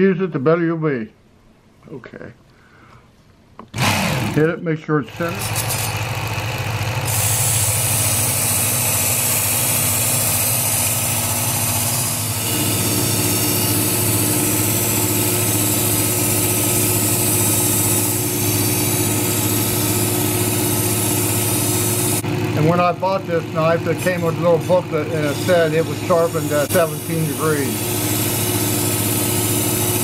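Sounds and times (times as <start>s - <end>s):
belt sharpener grinding knife: 5.1s - 22.2s, 23.6s - 30.0s.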